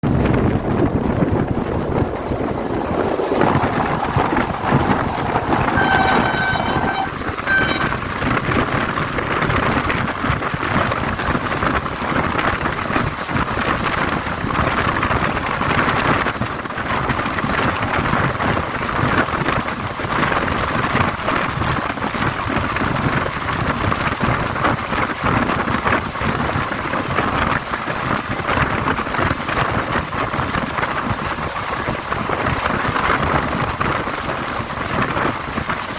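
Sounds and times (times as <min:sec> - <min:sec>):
passenger train passing: 0:00.9 - 0:09.2
train horn blasts: 0:03.4 - 0:08.3.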